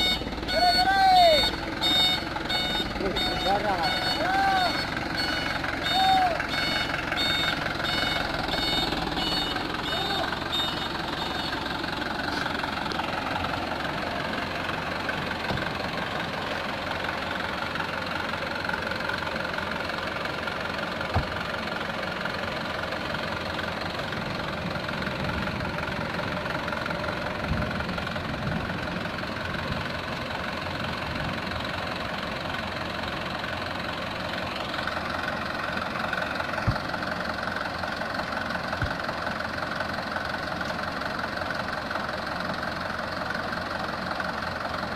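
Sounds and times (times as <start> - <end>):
reversing beeper: 0.0 - 12.5
diesel truck engine running: 0.0 - 44.9.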